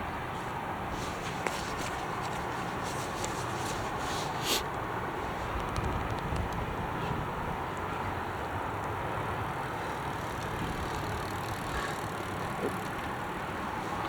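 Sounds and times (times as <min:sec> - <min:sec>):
distant jet engine: 0:00.1 - 0:14.0
wind buffeting microphone: 0:05.0 - 0:08.6, 0:09.3 - 0:13.8.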